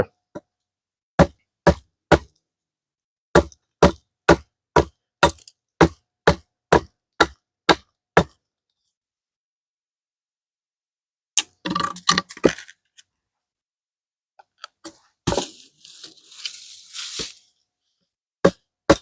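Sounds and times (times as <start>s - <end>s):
axe chopping wood: 1.2s - 2.3s, 3.4s - 8.4s, 18.4s - 19.0s.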